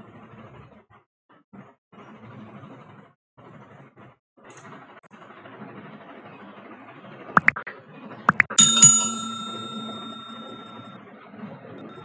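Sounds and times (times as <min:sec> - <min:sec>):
bright bell ding: 0:08.6 - 0:10.9.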